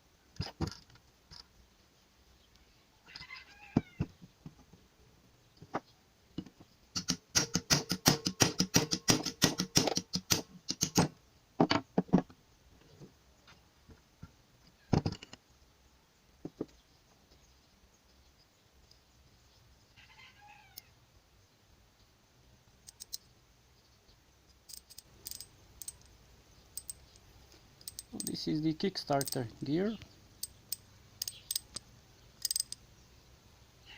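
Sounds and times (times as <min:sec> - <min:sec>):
small metal parts clicking: 0:22.8 - 0:23.3, 0:24.7 - 0:29.7, 0:30.4 - 0:32.8.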